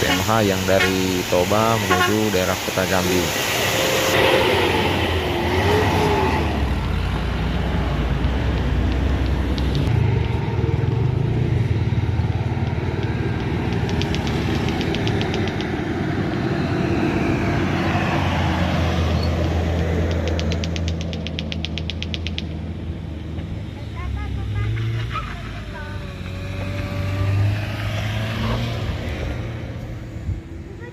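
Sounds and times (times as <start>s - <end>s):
bus engine running: 0.0s - 30.9s
fast ticking: 12.5s - 15.8s, 19.4s - 22.5s.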